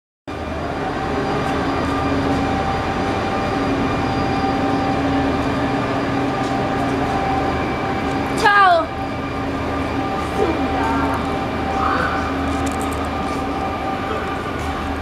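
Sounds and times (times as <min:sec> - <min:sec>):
train equipment hum: 0:00.3 - 0:15.0.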